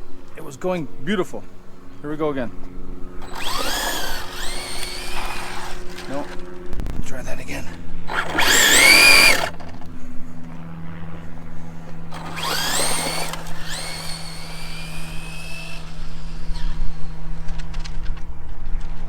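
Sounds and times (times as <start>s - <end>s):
electric motor whining: 0.0s - 19.0s
steady low hum: 0.0s - 19.0s.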